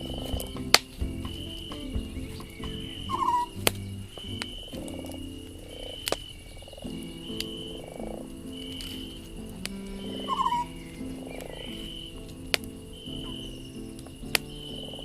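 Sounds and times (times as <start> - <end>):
campfire crackling and popping: 0.0 - 10.1
frogs croaking: 0.0 - 15.0.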